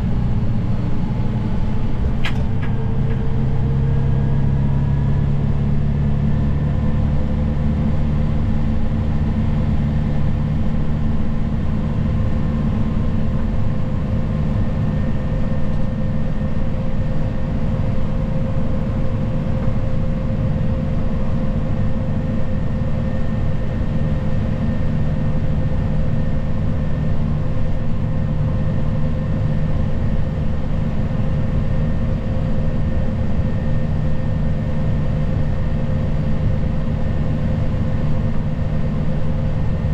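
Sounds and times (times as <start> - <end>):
tractor engine running: 0.1 - 8.0.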